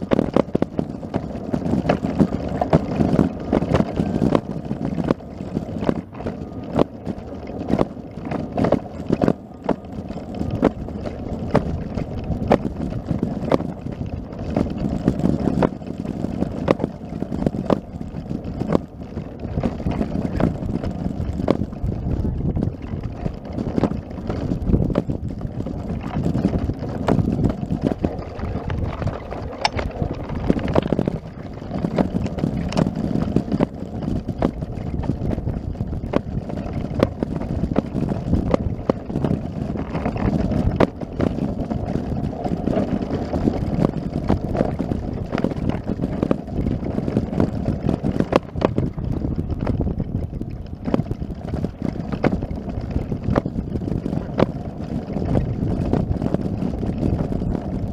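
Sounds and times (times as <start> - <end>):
scattered clicks and knocks: 0.0 - 57.9
wind buffeting microphone: 0.0 - 57.9.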